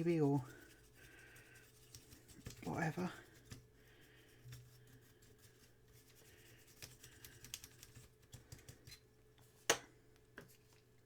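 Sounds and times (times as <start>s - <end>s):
brush scratching circuit board: 0.0s - 3.3s.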